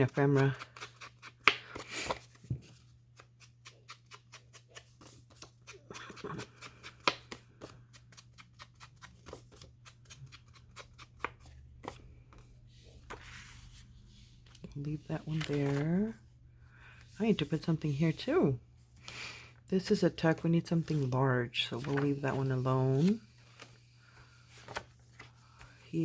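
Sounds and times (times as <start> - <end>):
paper and card rustling: 0.0 - 16.2, 19.8 - 26.0.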